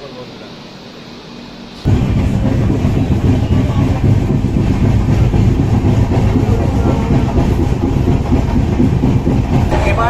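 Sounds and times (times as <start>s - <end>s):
train wheels rumbling on rails: 1.9s - 10.0s.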